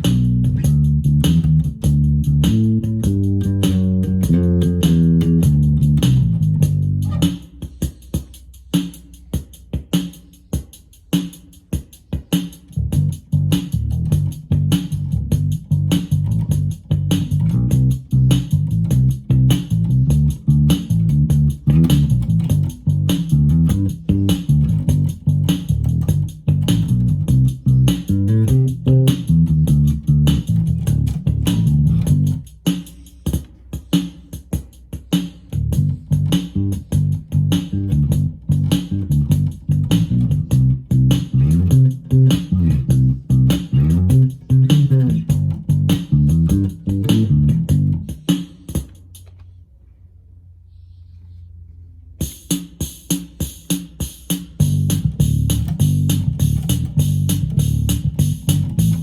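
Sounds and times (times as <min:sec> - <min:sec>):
electric bass playing: 0:00.0 - 0:07.5, 0:12.7 - 0:32.5, 0:35.6 - 0:48.2, 0:54.6 - 0:59.0
drum machine pattern: 0:00.0 - 0:49.2, 0:52.2 - 0:59.0.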